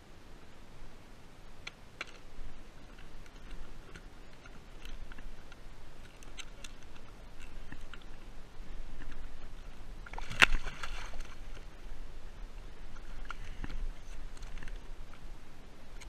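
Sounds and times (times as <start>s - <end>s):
low rumble of wind: 0.0s - 16.0s
water: 0.0s - 16.0s
fishing gear clicks and taps: 1.6s - 8.2s, 12.9s - 15.3s.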